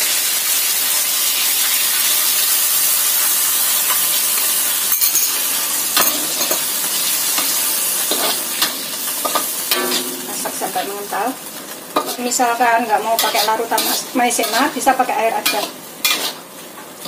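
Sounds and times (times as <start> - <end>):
chicken sizzling in a wok: 0.0 - 17.0
metal spatula scraping wok: 6.0 - 11.3, 11.9 - 16.5.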